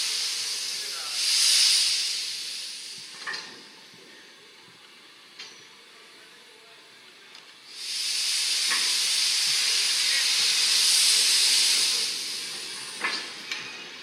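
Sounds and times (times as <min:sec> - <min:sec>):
gas venting hiss: 0:00.0 - 0:03.8, 0:07.7 - 0:13.7.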